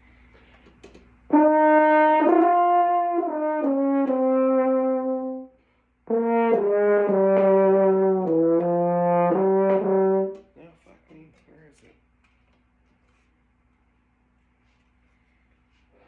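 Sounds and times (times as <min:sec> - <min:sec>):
brass instrument held notes: 0:01.3 - 0:10.5.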